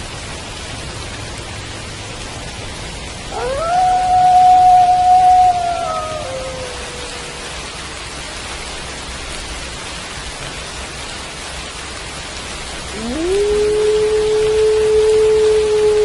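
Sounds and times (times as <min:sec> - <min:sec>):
steady rain: 0:00.0 - 0:16.0
wolf howling: 0:03.3 - 0:07.6, 0:12.9 - 0:16.0.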